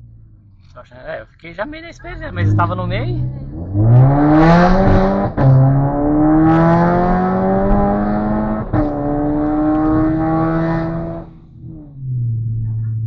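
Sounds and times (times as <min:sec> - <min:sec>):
car engine accelerating hard: 0:02.0 - 0:13.0.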